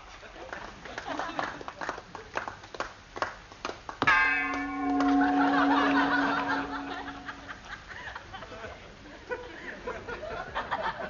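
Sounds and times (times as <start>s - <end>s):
scattered clapping: 0.5s - 6.3s
sharp metallic bell-like clang: 4.1s - 7.6s.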